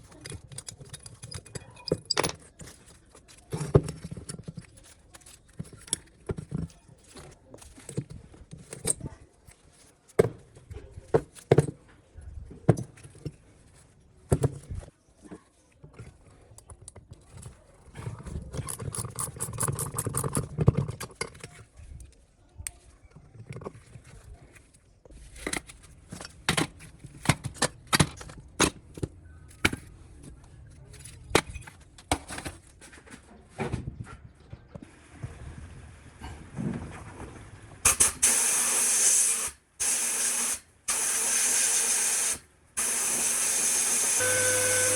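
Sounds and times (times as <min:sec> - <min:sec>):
tools and metal parts clinking: 0:00.0 - 0:11.9, 0:15.8 - 0:22.2, 0:22.8 - 0:33.3.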